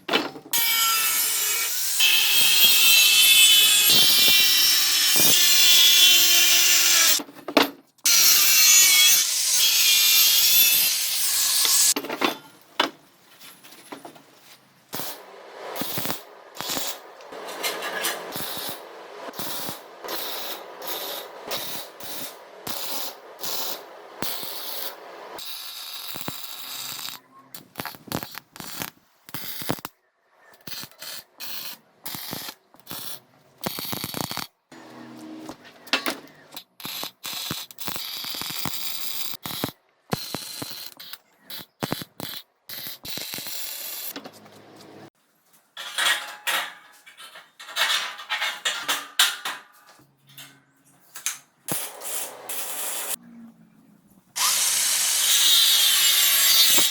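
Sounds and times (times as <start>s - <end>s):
power tool sawing: 0.6s - 7.2s, 8.1s - 12.0s, 54.4s - 56.9s.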